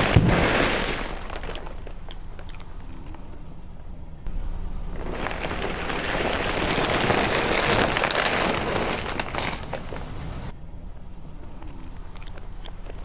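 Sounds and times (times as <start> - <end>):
tyre crushing brittle objects: 0.0 - 2.0, 5.0 - 10.2.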